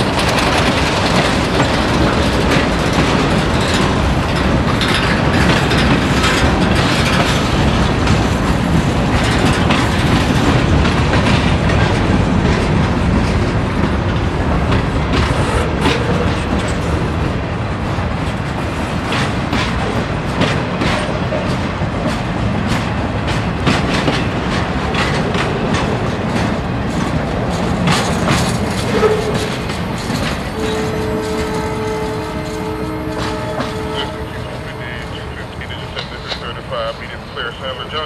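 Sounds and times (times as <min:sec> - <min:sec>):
wheels clanking over rail joints: 0:00.0 - 0:36.6
freight train cars rumbling: 0:00.0 - 0:38.0.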